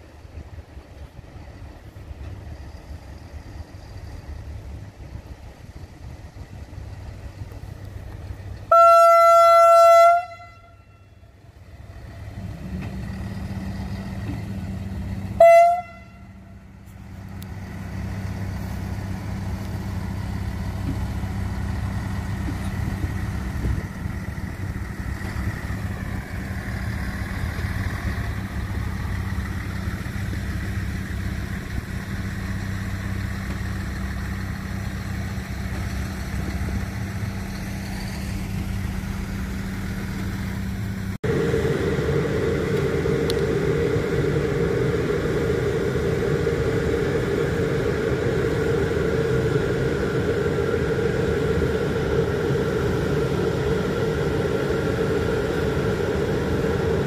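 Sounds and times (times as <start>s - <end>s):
diesel train engine drone: 0.0s - 57.0s
train horn blast: 8.7s - 11.4s, 15.4s - 16.6s.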